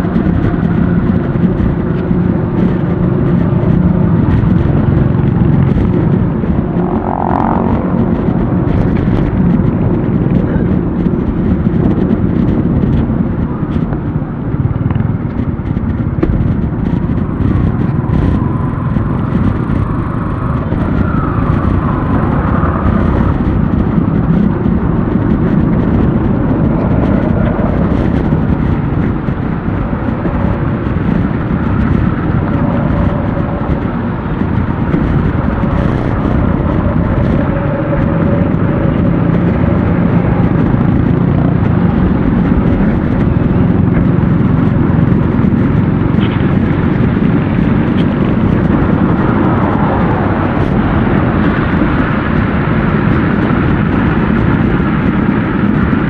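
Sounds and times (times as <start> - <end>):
motor traffic: 0.0 - 56.0
wind rumble on microphone: 0.0 - 56.0.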